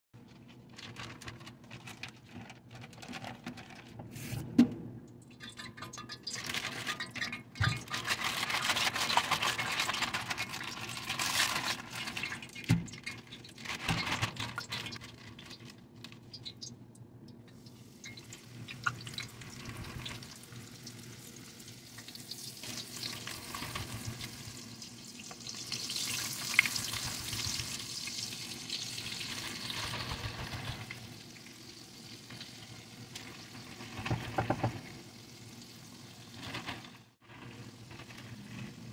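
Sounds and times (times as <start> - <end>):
plastic bag rustling: 0.2 - 4.4, 6.4 - 16.3
chicken sizzling in hot oil: 17.5 - 38.9.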